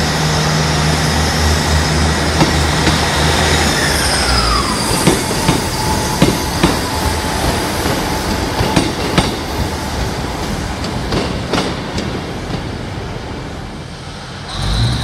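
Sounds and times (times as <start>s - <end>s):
diesel train engine and wheels: 0.0s - 15.0s
wheel squeal: 2.6s - 8.0s.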